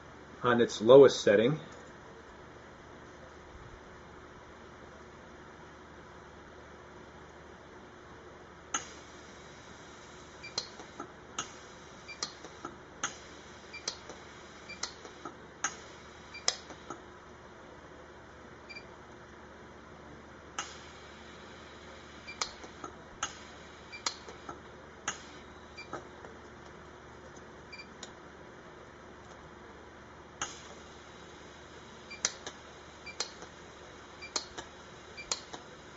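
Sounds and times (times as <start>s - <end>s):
pulse welder clicks: 8.7s - 9.0s, 10.4s - 17.0s, 20.6s - 20.9s, 22.3s - 26.1s, 30.4s - 30.8s, 32.1s - 33.6s, 34.2s - 35.7s.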